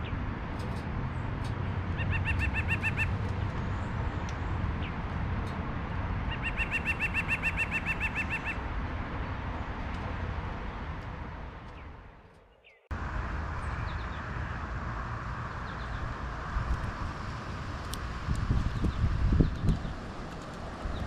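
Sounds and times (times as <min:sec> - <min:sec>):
outdoor background noise: 0:00.0 - 0:21.0
bird calling rapid notes: 0:02.0 - 0:03.2, 0:06.3 - 0:08.6.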